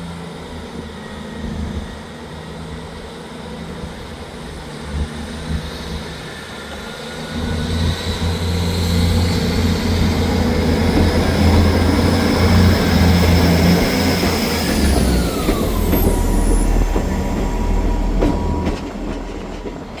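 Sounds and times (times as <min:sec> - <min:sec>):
diesel train engines working hard: 0:00.0 - 0:20.0
whine gliding down in pitch: 0:06.2 - 0:19.7.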